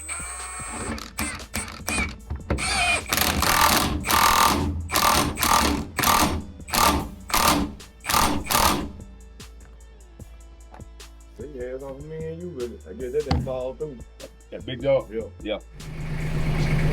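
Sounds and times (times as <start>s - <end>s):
power tool bursts: 0.0s - 9.1s.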